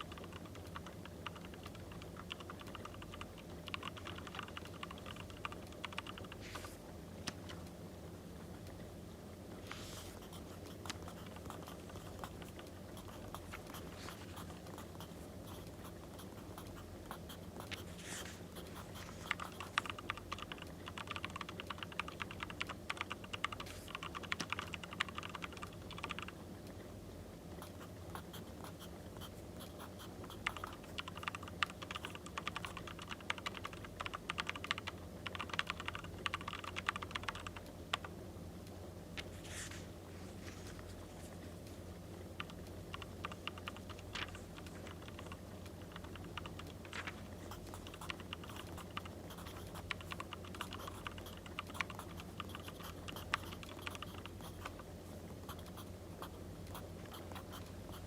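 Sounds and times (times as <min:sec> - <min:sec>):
low background hum: 0:00.0 - 0:58.0
pen scratching on paper: 0:09.7 - 0:19.8.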